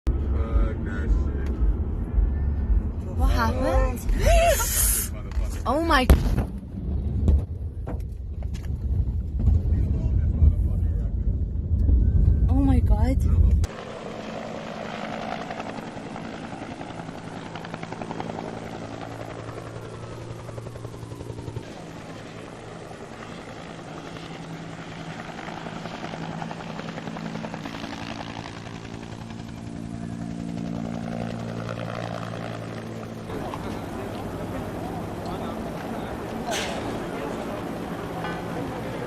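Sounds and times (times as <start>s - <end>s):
low pulsing mechanical drone: 0.1s - 13.8s.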